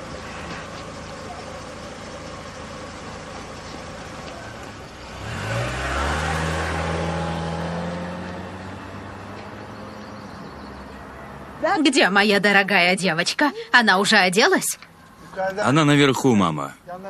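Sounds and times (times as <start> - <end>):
vehicle engine revving: 0.0 - 11.6.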